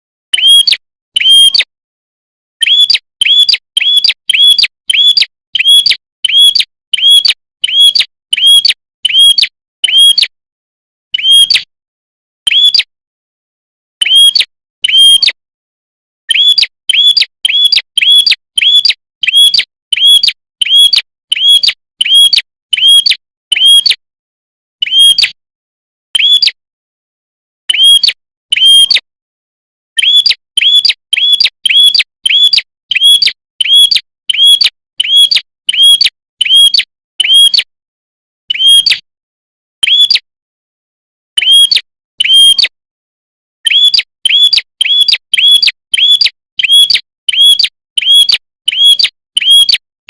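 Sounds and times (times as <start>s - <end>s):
bird chirping sharply: 0.3s - 1.7s, 2.6s - 10.3s, 11.1s - 11.6s, 12.5s - 12.9s, 16.3s - 23.9s, 24.8s - 25.3s, 26.2s - 26.6s, 30.0s - 37.6s, 38.5s - 39.0s, 39.8s - 40.3s, 43.6s - 49.8s.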